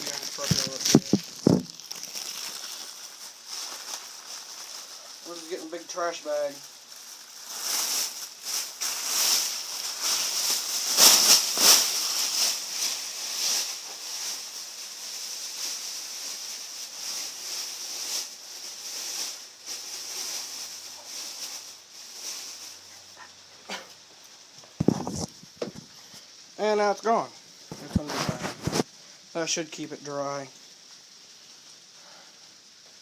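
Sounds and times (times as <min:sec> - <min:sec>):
plastic bag crinkling: 0:00.0 - 0:23.3, 0:24.6 - 0:28.9.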